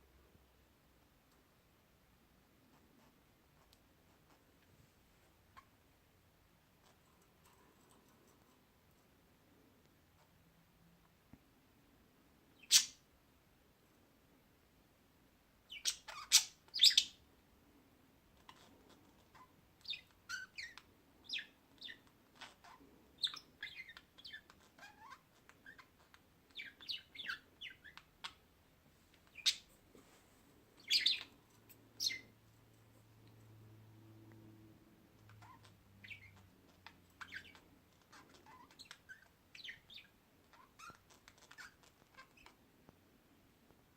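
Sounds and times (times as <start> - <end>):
small birds chirping: 12.4 - 13.1, 15.6 - 29.9, 30.5 - 33.6, 34.4 - 42.9.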